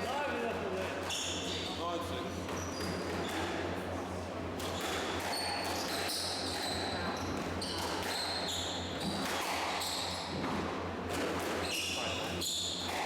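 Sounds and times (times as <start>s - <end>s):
shoes squeaking on court: 2.5s - 3.5s, 4.7s - 10.5s
squash ball hitting rackets and walls: 4.6s - 13.0s.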